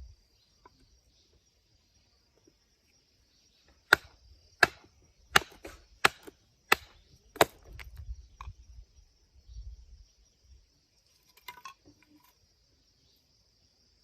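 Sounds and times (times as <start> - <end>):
axe striking a log: 3.8 - 8.0.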